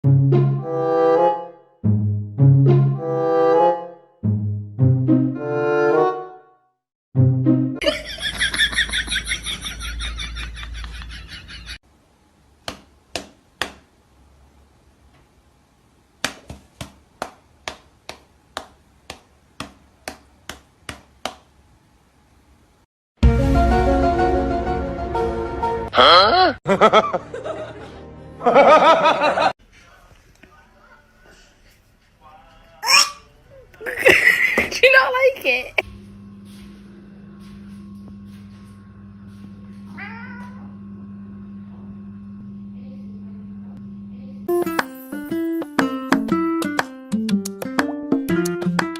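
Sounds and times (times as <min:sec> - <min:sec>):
cat meowing: 0:39.9 - 0:40.8.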